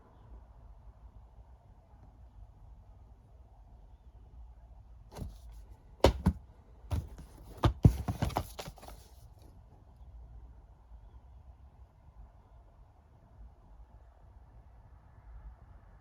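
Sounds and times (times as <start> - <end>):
plastic cases clacking: 5.2 - 9.1.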